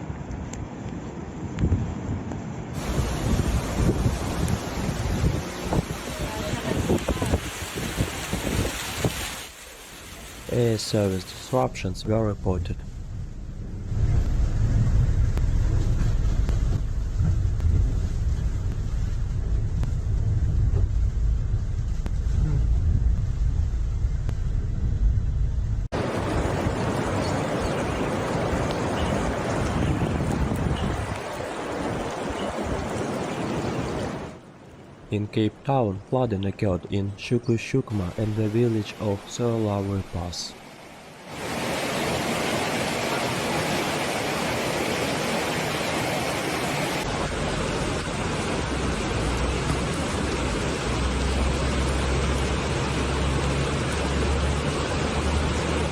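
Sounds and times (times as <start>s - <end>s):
floodwater rushing: 2.8s - 22.8s, 25.9s - 55.9s
heavy low rumble: 11.6s - 31.2s, 47.0s - 55.9s.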